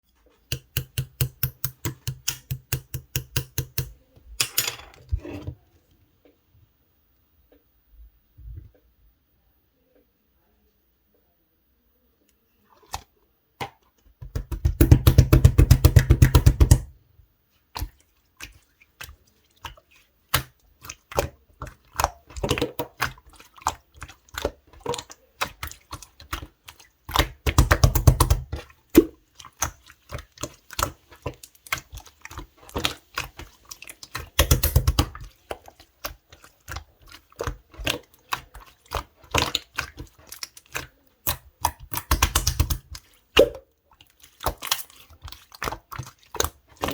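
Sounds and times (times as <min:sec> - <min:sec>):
rapid crackling of slime: 0:17.6 - 0:46.9
slime squished by hand: 0:17.8 - 0:46.9.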